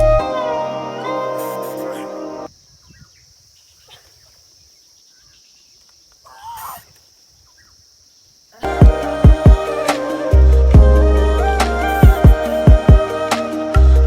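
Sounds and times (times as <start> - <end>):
high insect hum: 0.0 - 14.0
wavering call: 8.6 - 14.0.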